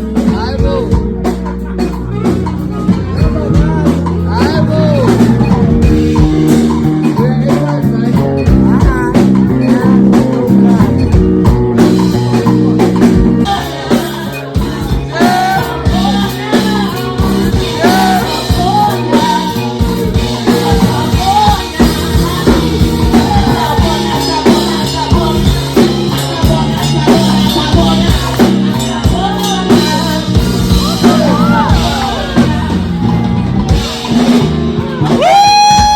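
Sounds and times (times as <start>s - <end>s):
live band music: 0.0s - 35.9s
person singing: 0.0s - 35.9s.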